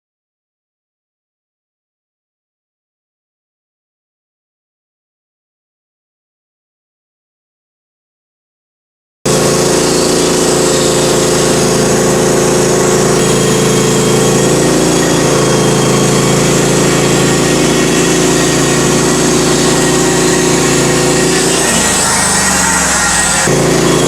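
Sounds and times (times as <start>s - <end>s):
sawmill engine running: 9.3s - 24.0s.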